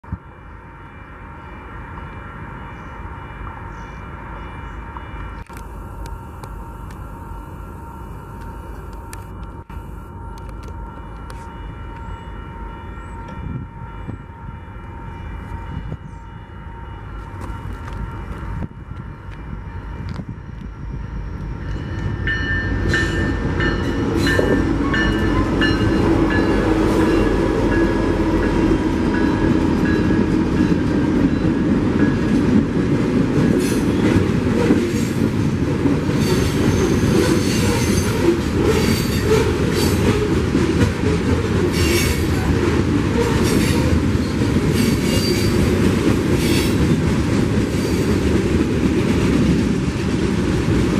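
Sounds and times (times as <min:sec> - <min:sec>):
train rumble: 0:02.0 - 0:50.9
train horn: 0:09.3 - 0:17.4
wheels clattering and squealing: 0:36.1 - 0:40.4.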